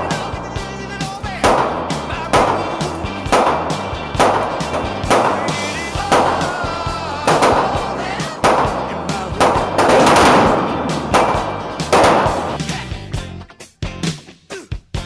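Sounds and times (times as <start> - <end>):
background music with bass line: 0.0 - 15.0
gunshots: 1.1 - 12.8.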